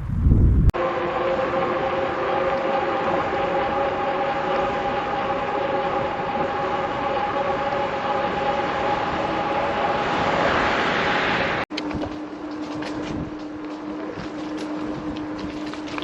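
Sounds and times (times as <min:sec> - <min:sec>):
tyre and wind noise: 0:00.0 - 0:00.8, 0:10.6 - 0:16.0
hub motor whine: 0:00.3 - 0:16.0.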